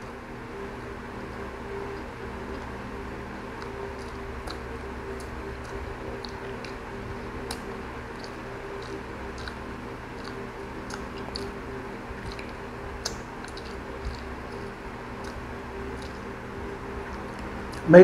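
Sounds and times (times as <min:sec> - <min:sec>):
steady low hum: 0:00.0 - 0:18.0
chewing crunchy food: 0:01.0 - 0:17.9
wet mouth clicks: 0:03.5 - 0:17.9.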